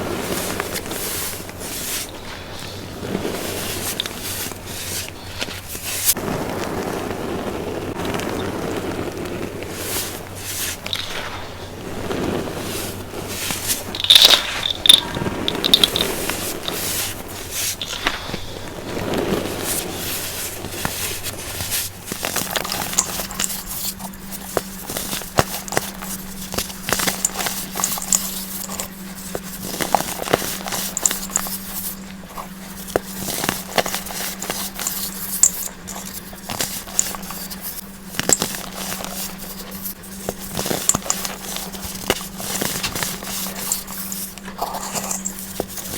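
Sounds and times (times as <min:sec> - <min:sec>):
baking soda being crushed: 0:09.6 - 0:45.9.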